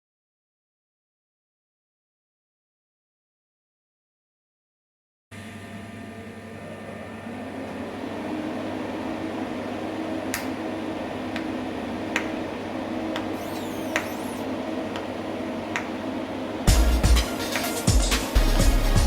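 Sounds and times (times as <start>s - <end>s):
welding machine hum: 11.0s - 15.9s.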